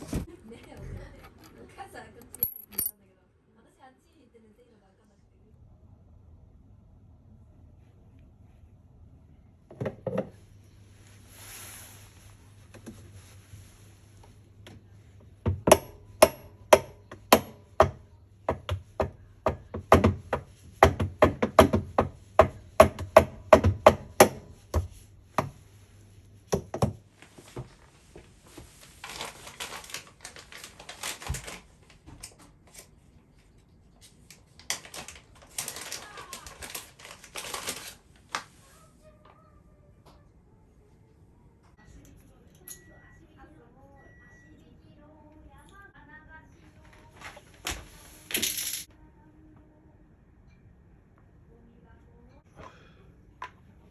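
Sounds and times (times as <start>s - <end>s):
rustling and scraping of tools: 0.0s - 2.9s, 27.1s - 38.8s.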